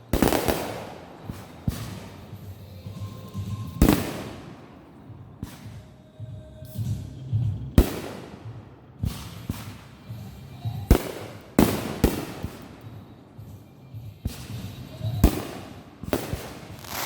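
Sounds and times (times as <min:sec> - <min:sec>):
fireworks bangs: 0:00.0 - 0:06.0, 0:07.8 - 0:10.2, 0:10.9 - 0:12.9, 0:14.3 - 0:17.0.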